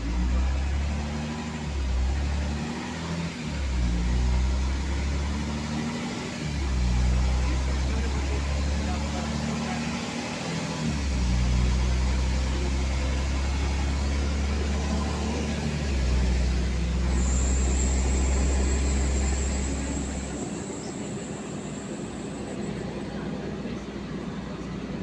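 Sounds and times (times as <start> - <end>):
bus engine drone: 0.0 - 25.0
faint high whine: 10.9 - 24.0.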